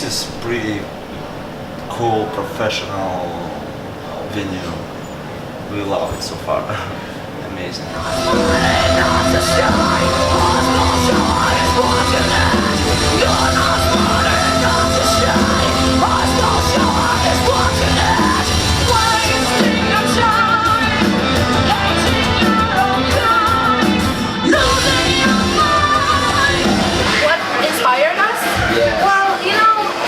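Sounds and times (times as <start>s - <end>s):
screamed vocals: 7.9s - 21.0s
heavy metal music: 7.9s - 30.0s.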